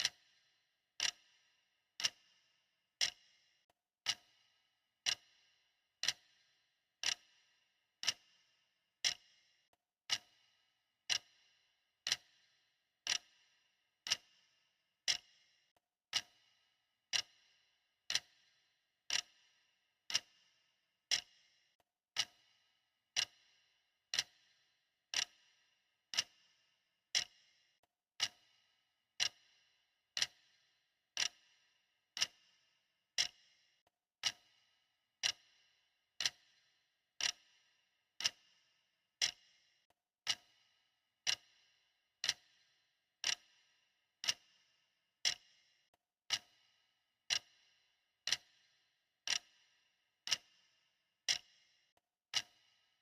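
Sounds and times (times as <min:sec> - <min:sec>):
clock ticking: 0:00.0 - 0:00.3, 0:01.0 - 0:01.2, 0:02.0 - 0:02.3, 0:03.0 - 0:03.2, 0:04.0 - 0:04.4, 0:05.0 - 0:05.3, 0:06.0 - 0:06.3, 0:07.0 - 0:07.3, 0:08.0 - 0:08.2, 0:09.0 - 0:09.3, 0:10.1 - 0:10.4, 0:11.1 - 0:11.3, 0:12.0 - 0:12.3, 0:13.1 - 0:13.3, 0:14.1 - 0:14.3, 0:15.1 - 0:15.3, 0:16.1 - 0:16.4, 0:17.1 - 0:17.4, 0:18.1 - 0:18.4, 0:19.1 - 0:19.4, 0:20.1 - 0:20.3, 0:21.1 - 0:21.3, 0:22.1 - 0:22.4, 0:23.1 - 0:23.4, 0:24.1 - 0:24.4, 0:25.1 - 0:25.4, 0:26.1 - 0:26.4, 0:27.1 - 0:27.4, 0:28.2 - 0:28.5, 0:29.2 - 0:29.4, 0:30.2 - 0:30.5, 0:31.2 - 0:31.4, 0:32.2 - 0:32.4, 0:33.2 - 0:33.4, 0:34.2 - 0:34.5, 0:35.2 - 0:35.5, 0:36.2 - 0:36.5, 0:37.2 - 0:37.5, 0:38.2 - 0:38.5, 0:39.2 - 0:39.4, 0:40.2 - 0:40.6, 0:41.2 - 0:41.5, 0:42.2 - 0:42.6, 0:43.2 - 0:43.5, 0:44.2 - 0:44.5, 0:45.2 - 0:45.4, 0:46.3 - 0:46.6, 0:47.3 - 0:47.6, 0:48.3 - 0:48.5, 0:49.3 - 0:49.5, 0:50.3 - 0:50.5, 0:51.3 - 0:51.5, 0:52.3 - 0:52.7.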